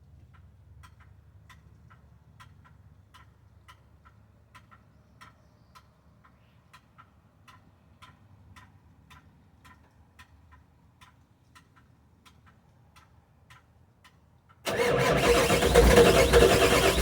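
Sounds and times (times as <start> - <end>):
diesel engine idling: 14.7 - 17.0.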